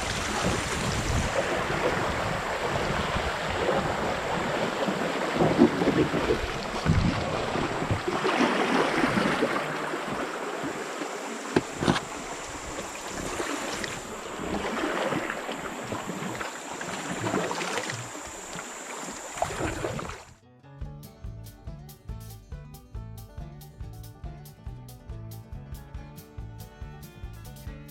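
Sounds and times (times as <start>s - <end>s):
wind buffeting microphone: 0.0s - 10.8s, 11.5s - 20.1s
water splashing around kayak: 0.0s - 20.4s.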